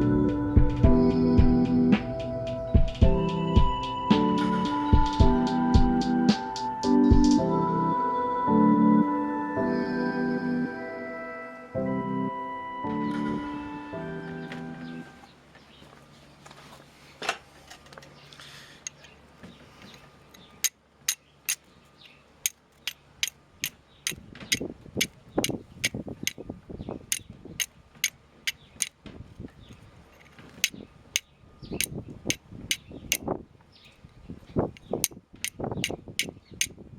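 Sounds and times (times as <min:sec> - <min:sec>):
steel striking flint clicks: 0:34.8 - 0:36.8.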